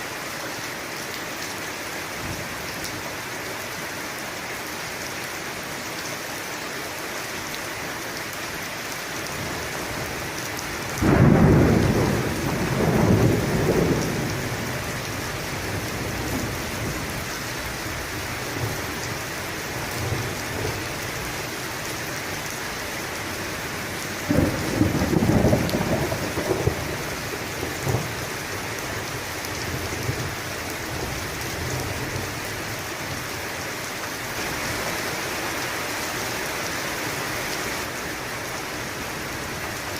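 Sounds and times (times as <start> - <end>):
steady rain: 0.0 - 39.9
thunder rumbling: 10.9 - 17.2, 24.2 - 28.4.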